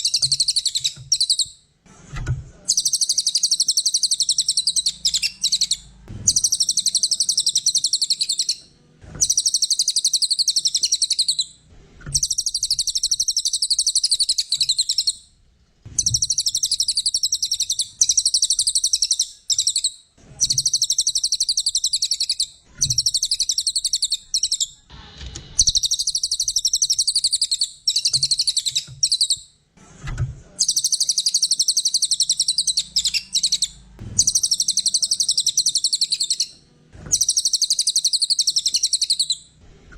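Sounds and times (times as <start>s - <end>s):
songbird twittering: 0.0s - 1.6s, 2.7s - 8.6s, 9.2s - 15.2s, 16.0s - 24.8s, 25.6s - 29.5s, 30.6s - 36.5s, 37.1s - 39.4s.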